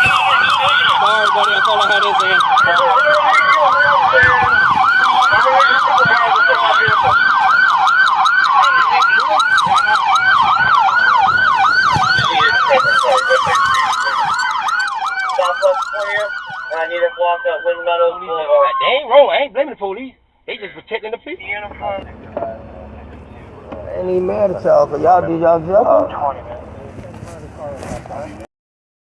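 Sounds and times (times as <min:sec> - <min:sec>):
slower gliding siren tone: 0:00.0 - 0:19.1
police siren yelp: 0:00.0 - 0:19.2.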